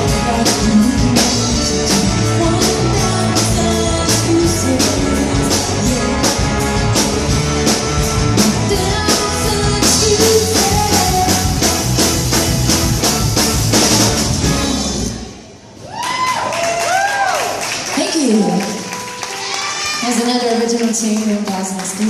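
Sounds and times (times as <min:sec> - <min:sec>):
drum kit beat: 0:00.0 - 0:15.3
band playing rock music: 0:00.0 - 0:15.5.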